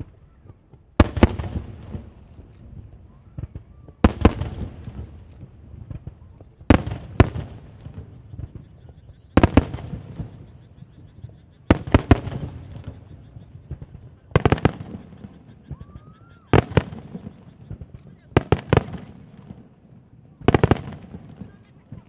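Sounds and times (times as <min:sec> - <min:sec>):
firework shells bursting: 0:00.0 - 0:10.6, 0:11.2 - 0:19.6
rising firework whistle: 0:14.6 - 0:17.9.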